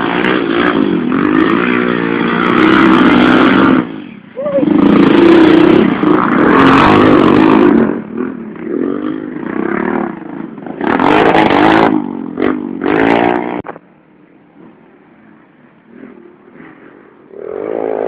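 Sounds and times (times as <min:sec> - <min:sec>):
racing motorcycles revving past: 0:00.0 - 0:13.8, 0:14.6 - 0:18.0.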